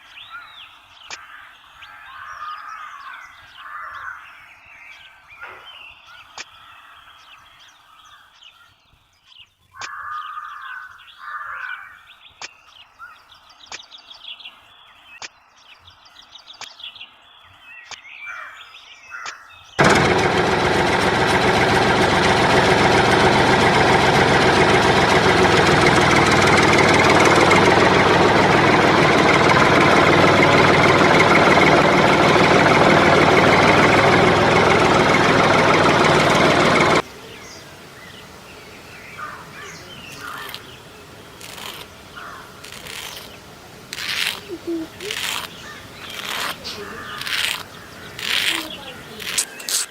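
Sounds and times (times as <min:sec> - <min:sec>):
motor running loudly: 0:19.8 - 0:37.0, 0:45.0 - 0:49.9.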